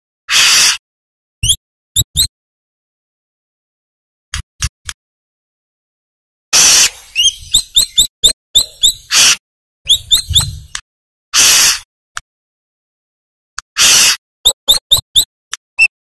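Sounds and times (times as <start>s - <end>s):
bird chirping: 1.4s - 2.3s, 6.8s - 10.7s, 14.5s - 15.9s.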